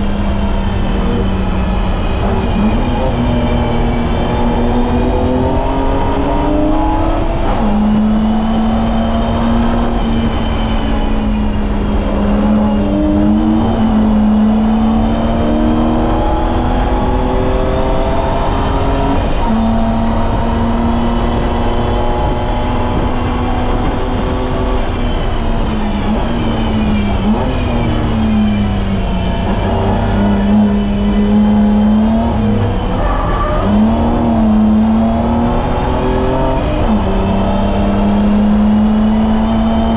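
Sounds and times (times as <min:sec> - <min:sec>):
car engine revving: 0:00.0 - 0:39.9
road and tyre rumble: 0:00.0 - 0:39.9.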